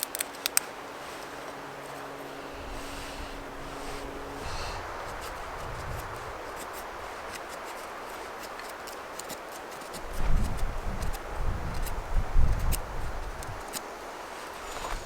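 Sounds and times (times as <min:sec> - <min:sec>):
sharp ticks: 0:00.0 - 0:00.7
rain hiss in woodland: 0:00.2 - 0:15.0.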